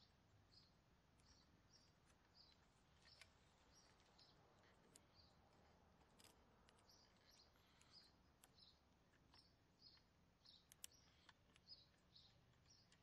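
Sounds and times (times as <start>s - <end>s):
faint bird chirping: 0.0s - 13.0s
light plastic toy clicks: 6.0s - 13.0s.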